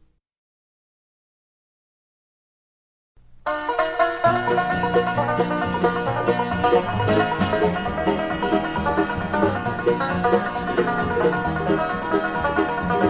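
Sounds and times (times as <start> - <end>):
bass: 3.2 - 13.0
rhythm guitar: 3.2 - 13.0
banjo picking: 3.4 - 13.0.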